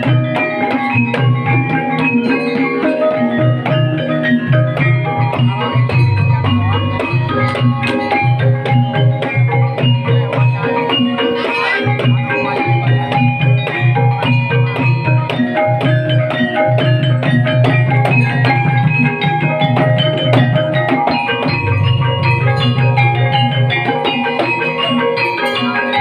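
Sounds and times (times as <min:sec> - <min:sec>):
mallet-struck tuned notes: 0:00.0 - 0:26.0
low drum beat: 0:03.2 - 0:11.1, 0:12.9 - 0:24.2.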